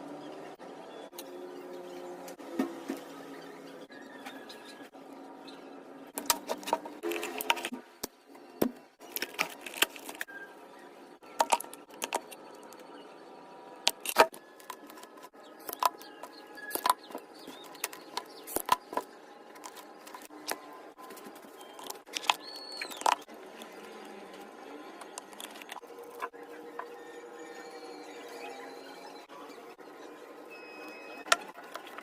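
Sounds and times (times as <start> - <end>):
sharp clicks and crackles: 13.9 - 24.2, 25.0 - 26.3.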